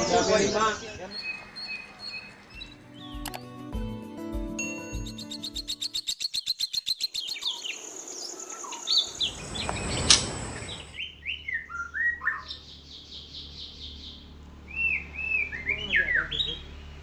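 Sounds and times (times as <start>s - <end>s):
bird singing whistled phrases: 1.1s - 3.2s, 10.7s - 12.6s
sharp click: 3.2s - 3.4s.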